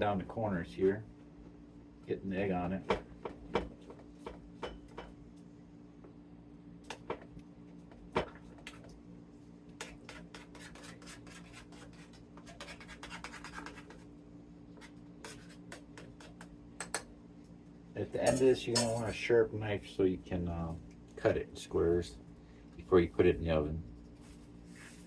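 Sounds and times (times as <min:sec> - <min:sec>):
rubbing and tapping dough: 0:09.7 - 0:14.1, 0:14.7 - 0:17.1.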